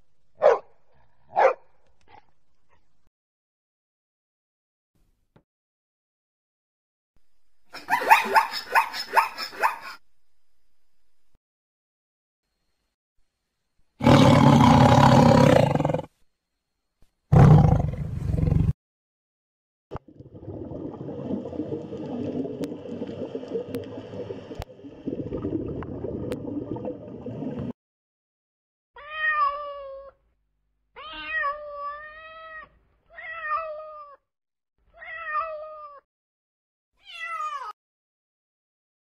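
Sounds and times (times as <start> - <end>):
cat meowing: 29.0 - 30.2, 31.0 - 34.2, 35.0 - 36.0, 37.0 - 37.8.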